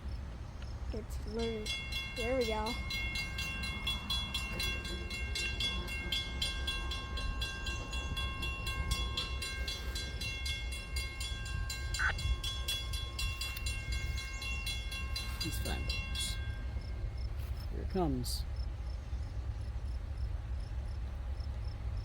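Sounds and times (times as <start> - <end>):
train rumbling on rails: 0.0 - 22.0
thin high tones: 1.0 - 17.1.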